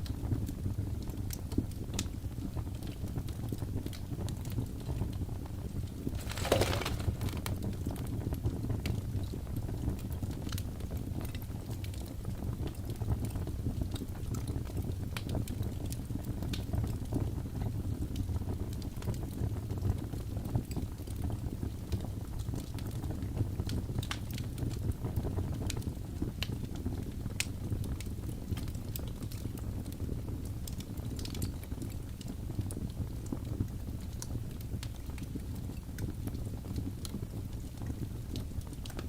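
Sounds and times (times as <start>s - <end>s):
fire crackling and popping: 0.0s - 39.0s
fire flames rumbling: 0.8s - 8.9s.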